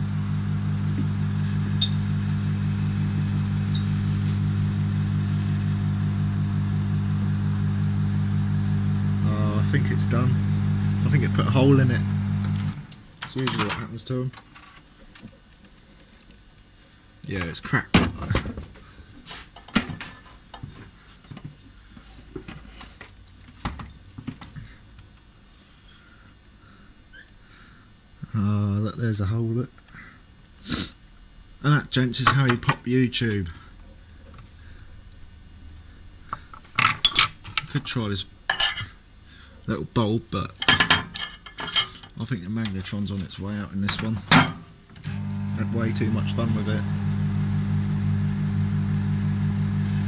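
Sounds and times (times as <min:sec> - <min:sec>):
microwave oven humming: 0:00.0 - 0:13.4, 0:44.9 - 0:50.0.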